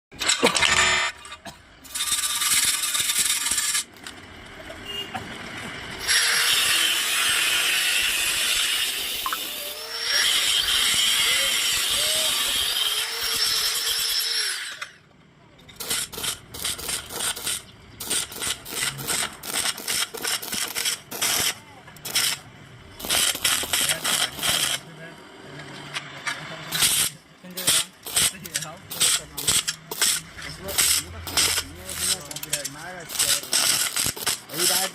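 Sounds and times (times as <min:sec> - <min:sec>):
arc welding crackle: 0:01.9 - 0:04.1, 0:15.8 - 0:24.8, 0:26.7 - 0:34.9.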